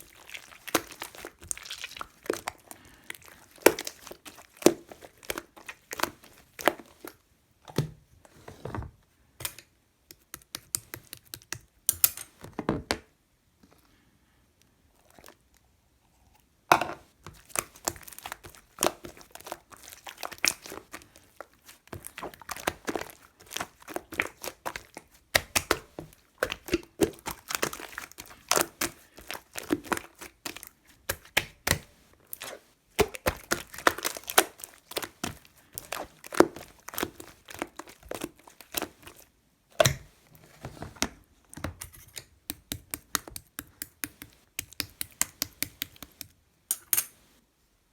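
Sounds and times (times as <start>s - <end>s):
crinkling and clicks of objects: 16.7s - 47.3s.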